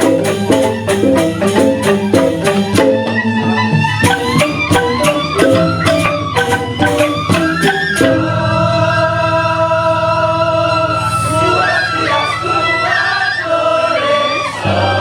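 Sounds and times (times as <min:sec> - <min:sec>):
bamboo xylophones struck: 0:00.0 - 0:08.4.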